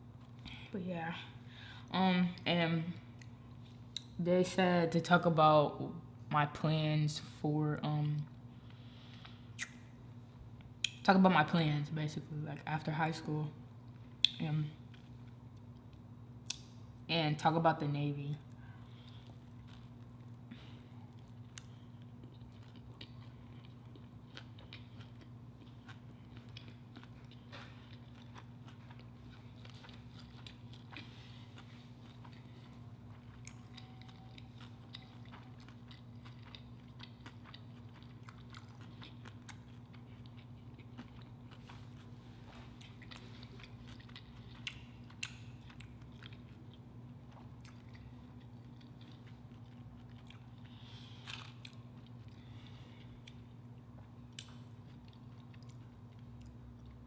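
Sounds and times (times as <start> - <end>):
steady low hum: 0.0 - 57.0
wet mouth clicks: 9.6 - 9.8
person chewing: 18.5 - 57.0.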